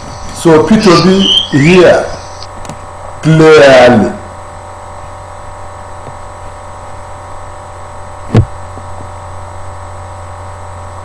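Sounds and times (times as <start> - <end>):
steady electrical hum: 0.0 - 11.0
short sharp thump: 8.3 - 8.6.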